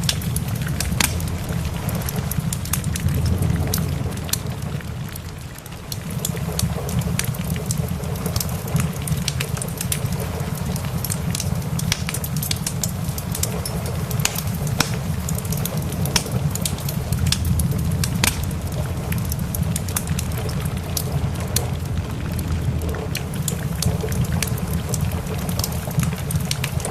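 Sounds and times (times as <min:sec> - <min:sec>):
low rumble: 0:00.0 - 0:07.2, 0:15.1 - 0:26.4
rain hissing: 0:00.0 - 0:26.9
wood fire crackling and popping: 0:00.0 - 0:26.9.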